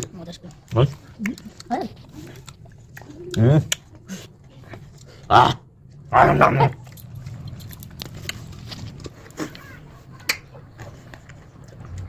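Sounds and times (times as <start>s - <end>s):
dog barking: 6.1s - 6.8s.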